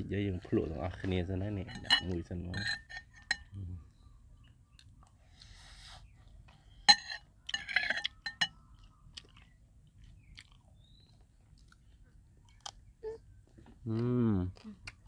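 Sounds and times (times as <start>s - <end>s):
chewing crisp food: 4.0s - 15.0s.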